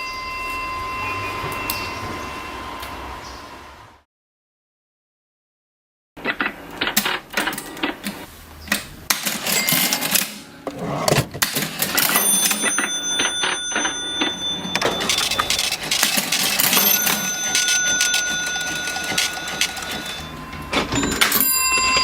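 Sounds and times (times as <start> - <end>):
cash register keys clacking: 9.2 - 11.7, 14.2 - 20.5
cash register bell ringing: 9.2 - 22.0.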